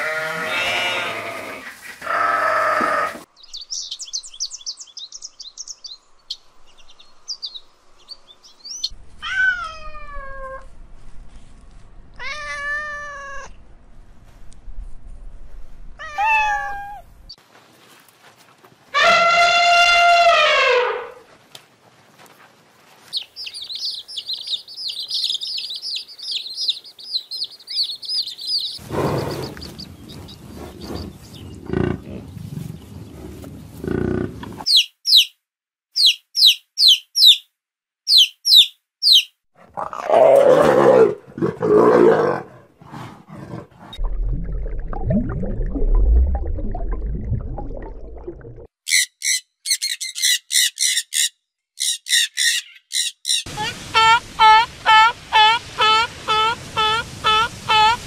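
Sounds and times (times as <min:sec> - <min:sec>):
loud lower animal calls: 0:19.0 - 0:21.2
chicks peeping: 0:23.0 - 0:31.6
high repeated chirps: 0:34.7 - 0:35.4, 0:36.0 - 0:37.5, 0:38.1 - 0:39.3.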